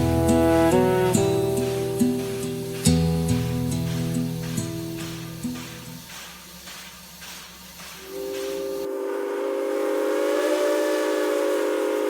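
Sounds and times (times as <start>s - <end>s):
acoustic guitar music: 0.0s - 6.0s
steam locomotive whistle chord: 0.0s - 6.2s, 8.0s - 12.0s
steam hissing: 0.0s - 12.0s.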